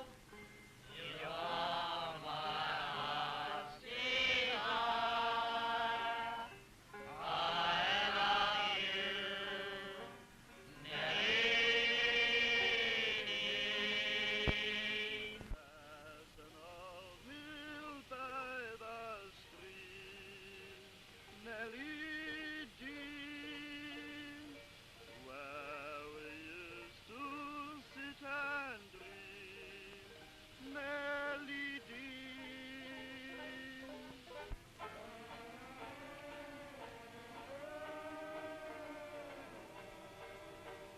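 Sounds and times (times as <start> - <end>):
soldiers singing in chorus: 1.0 - 6.5, 7.2 - 10.2, 10.8 - 15.5, 35.0 - 40.9.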